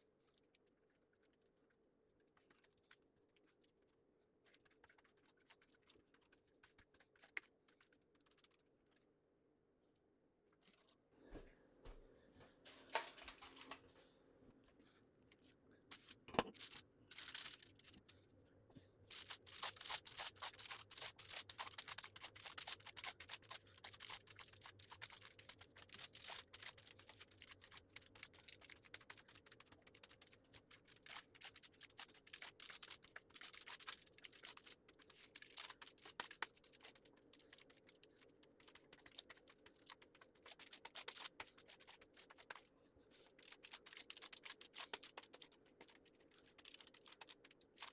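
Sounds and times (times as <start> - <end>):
small clicks and scratches: 0.0 - 9.1, 15.3 - 18.2, 19.1 - 47.9.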